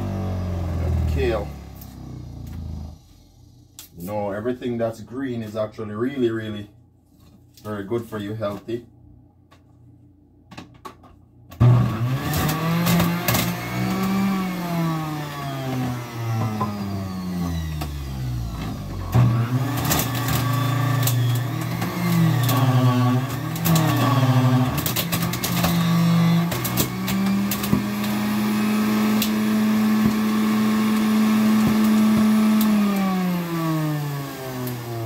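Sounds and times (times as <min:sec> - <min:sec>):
electric juicer motor running: 0:00.0 - 0:02.9, 0:11.6 - 0:35.0.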